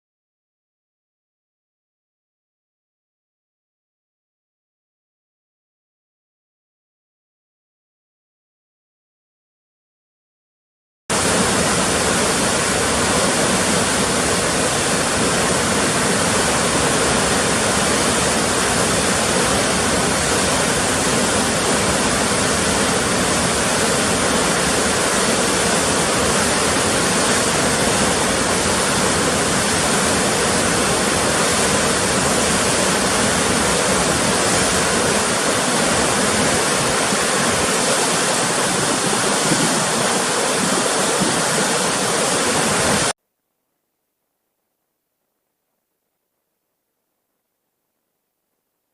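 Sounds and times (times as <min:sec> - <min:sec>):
rushing river water: 0:11.1 - 0:43.2.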